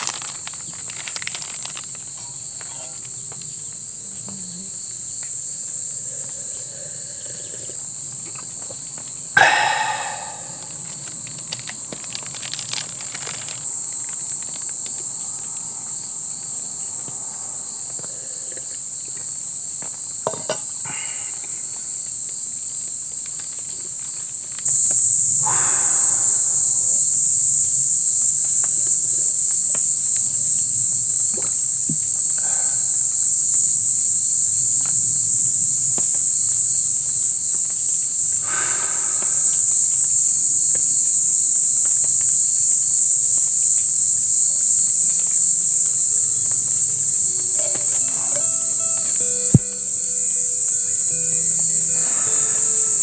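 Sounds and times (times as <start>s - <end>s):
insects chirring: 0.0s - 53.0s
short animal calls: 9.4s - 10.9s, 25.4s - 27.3s.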